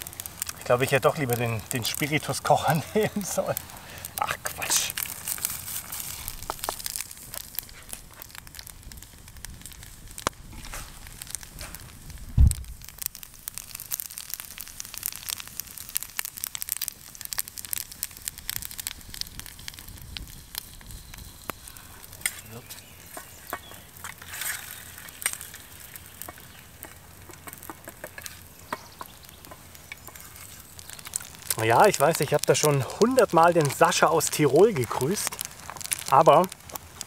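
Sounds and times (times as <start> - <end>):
food sizzling in oil: 0.0 - 37.0
low thump: 12.3 - 12.7.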